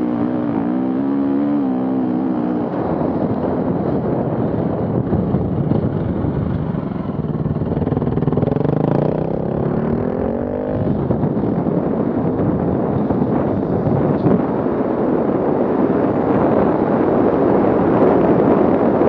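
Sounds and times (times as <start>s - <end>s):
vehicle engine revving: 0.0s - 3.7s, 5.7s - 11.5s.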